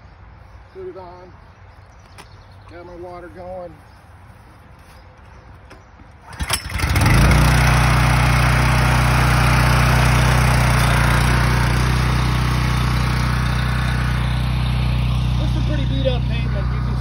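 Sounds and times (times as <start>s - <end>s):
engine starting clatter: 6.2s - 7.4s
pressure washer engine running: 6.3s - 17.0s.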